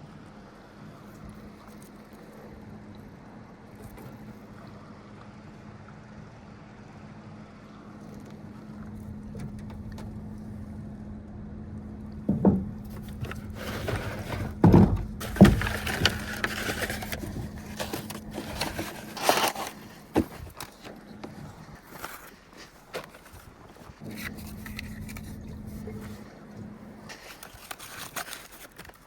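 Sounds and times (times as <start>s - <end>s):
low hum: 4.6s - 22.4s, 23.1s - 28.3s
gear thumping and knocking: 12.2s - 22.1s
scraping: 12.3s - 29.0s.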